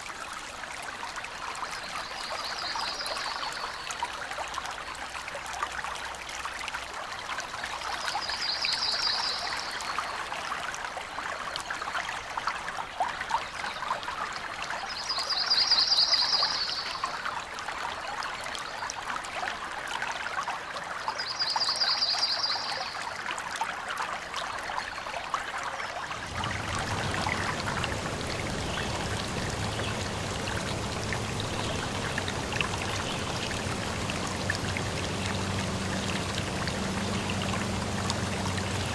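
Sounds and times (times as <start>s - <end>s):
stream trickling and splashing: 0.0s - 38.9s
low hum: 26.1s - 38.9s.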